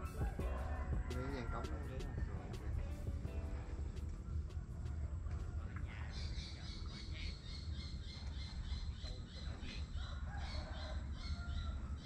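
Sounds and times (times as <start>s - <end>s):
steady low rumble: 0.0s - 8.9s.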